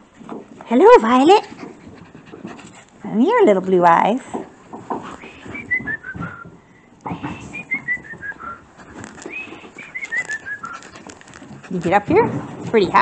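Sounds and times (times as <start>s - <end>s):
puppies scuffling: 0.0s - 13.0s
bird whistling song: 5.2s - 6.5s, 7.2s - 8.6s, 9.3s - 10.9s.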